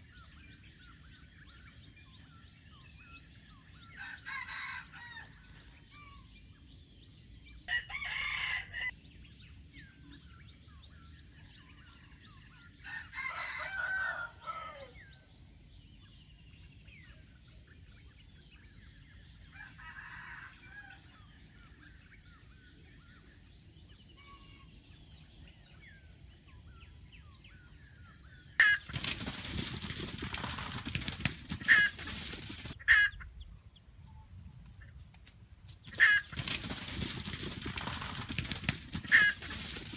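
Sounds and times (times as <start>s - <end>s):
rooster crowing: 4.0s - 5.7s, 7.7s - 8.9s, 12.8s - 15.0s, 19.6s - 21.0s
loud rustling with sharp clicks: 28.6s - 32.8s, 35.1s - 39.9s.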